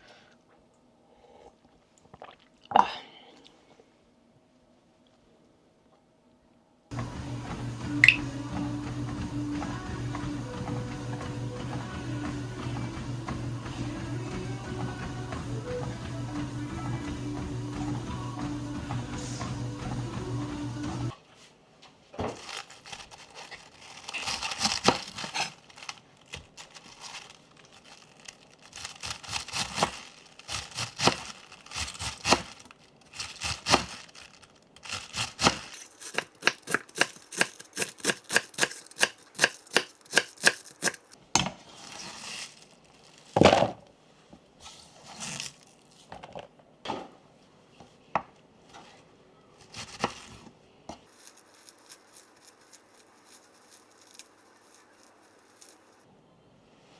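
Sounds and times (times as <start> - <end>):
rustling and tearing: 22.2 - 43.7, 44.6 - 46.1, 49.6 - 56.1
knife chopping on cutting board: 35.4 - 41.0.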